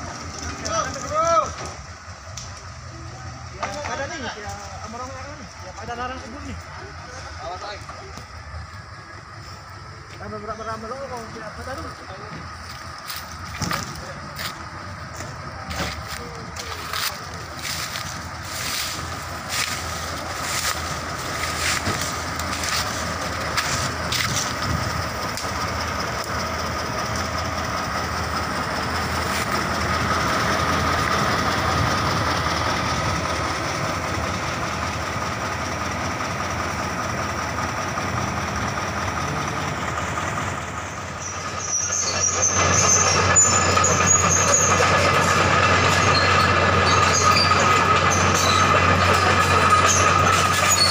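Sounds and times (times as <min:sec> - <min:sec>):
excavator diesel engine with whine: 0:00.0 - 0:50.9
metallic track clanks: 0:10.7 - 0:50.9
high squeal: 0:40.8 - 0:50.9.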